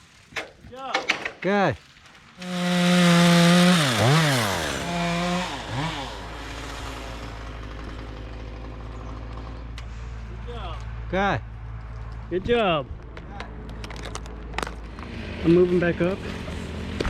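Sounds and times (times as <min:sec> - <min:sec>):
chainsaw revving and idling: 0:02.4 - 0:09.8.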